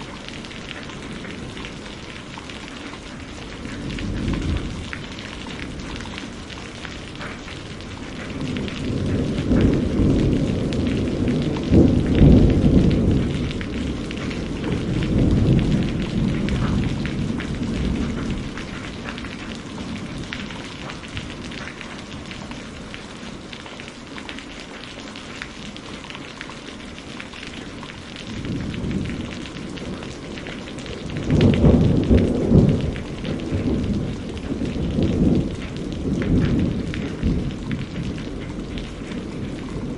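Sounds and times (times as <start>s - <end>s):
steady rain falling: 0.0s - 39.9s
rolling thunder: 3.3s - 23.3s, 28.1s - 39.9s.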